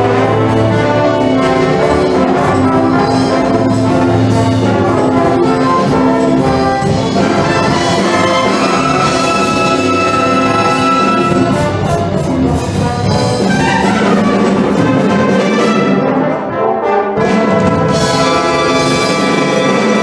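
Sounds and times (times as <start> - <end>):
wind band playing: 0.0 - 20.0.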